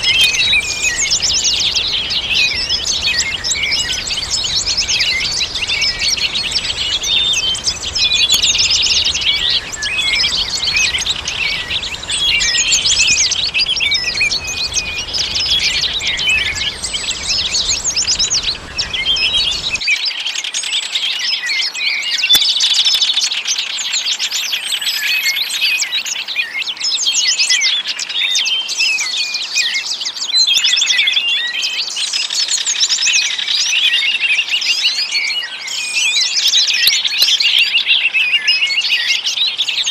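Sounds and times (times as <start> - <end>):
faint low hiss: 0.0 - 19.8
songbirds chirping and trilling: 0.0 - 19.8.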